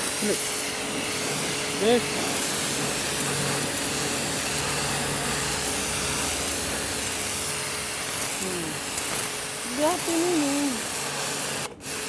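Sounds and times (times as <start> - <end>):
pressure washer water jet hissing: 0.0 - 12.0
washer motor and pump humming: 0.0 - 12.0.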